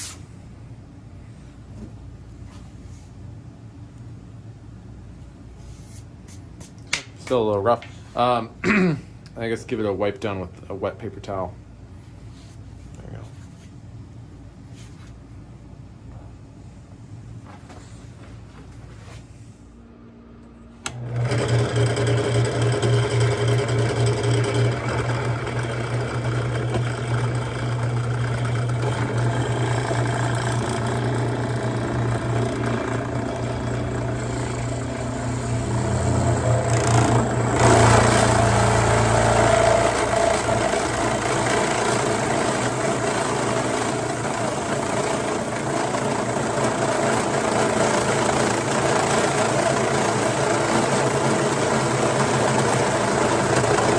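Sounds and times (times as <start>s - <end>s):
electric drill boring: 20.9s - 53.9s.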